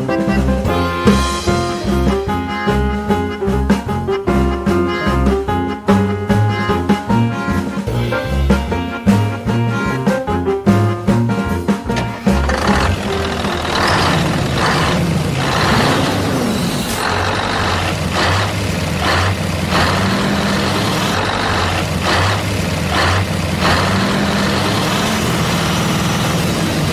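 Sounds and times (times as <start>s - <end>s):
vehicle engine humming: 11.9s - 26.9s.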